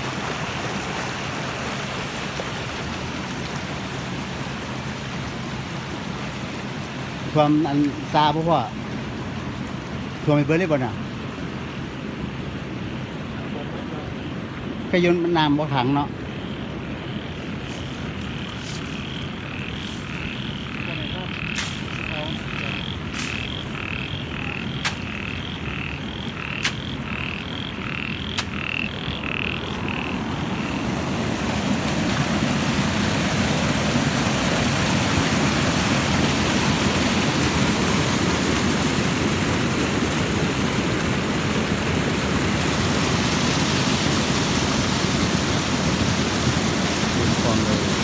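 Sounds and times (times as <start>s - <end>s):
heavy rain rushing: 0.0s - 13.1s, 28.5s - 48.0s
frogs croaking: 0.0s - 48.0s.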